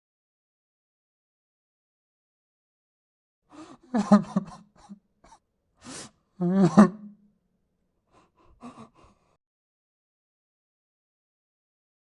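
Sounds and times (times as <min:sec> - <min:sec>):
gasping breath: 0:03.5 - 0:03.9, 0:05.8 - 0:06.6, 0:08.1 - 0:09.4
man sobbing: 0:03.6 - 0:05.0, 0:06.4 - 0:07.1, 0:08.2 - 0:09.3.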